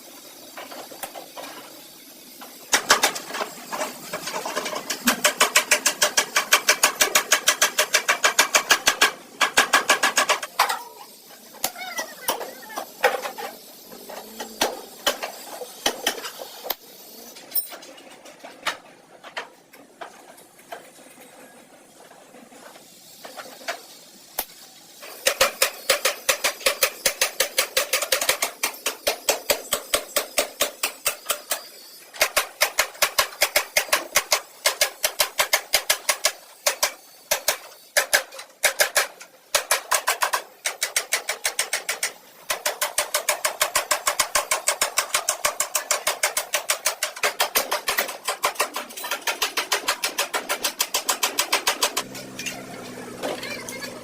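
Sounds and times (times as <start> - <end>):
rapid taps on metal: 4.2 - 10.7.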